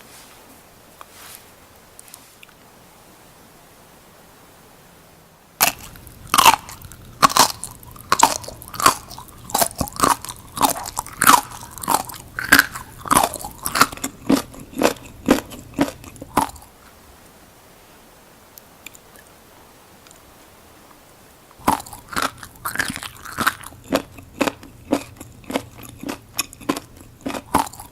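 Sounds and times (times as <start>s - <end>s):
crunchy chewing: 5.6s - 16.8s, 21.6s - 27.9s.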